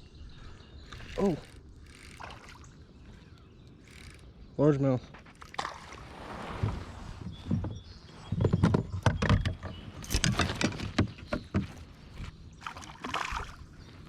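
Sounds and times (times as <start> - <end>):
knocks and rattles on kayak: 5.2 - 13.7.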